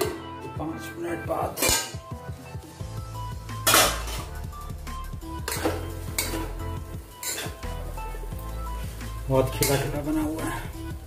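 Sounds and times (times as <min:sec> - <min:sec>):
background music: 0:00.0 - 0:11.0
spatula scraping metal pan: 0:03.6 - 0:04.3, 0:05.3 - 0:07.8
steel lid set down: 0:03.6 - 0:04.3.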